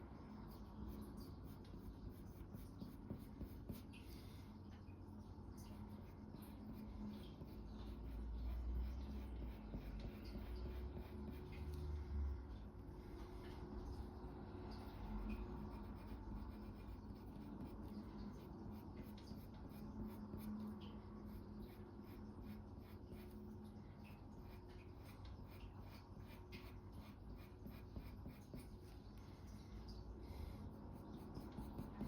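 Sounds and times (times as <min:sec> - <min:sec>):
pencil scratching on paper: 0:00.0 - 0:04.2, 0:05.8 - 0:11.7, 0:14.8 - 0:23.4, 0:24.4 - 0:29.0, 0:30.3 - 0:32.0
faint steady hum: 0:00.0 - 0:32.0.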